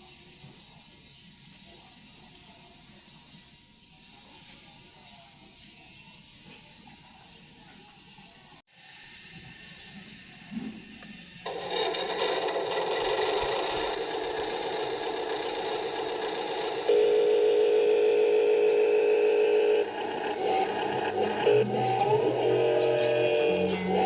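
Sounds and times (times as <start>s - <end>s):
small electric gear motors whining: 11.4s - 24.0s.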